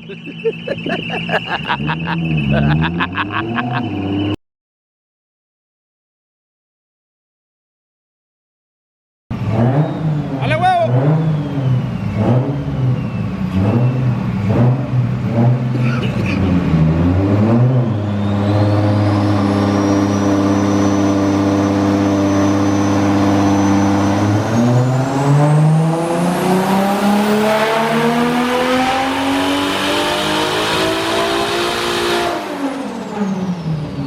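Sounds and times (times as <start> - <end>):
car engine revving: 0.0 - 4.4, 9.3 - 34.0
turbo whistle: 0.0 - 4.4, 17.7 - 24.8.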